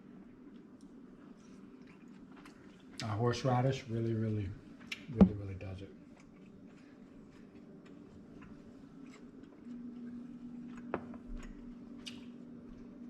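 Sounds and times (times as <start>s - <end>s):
chewing meat: 0.0s - 3.4s, 5.9s - 13.0s
steady low hum: 0.0s - 13.0s.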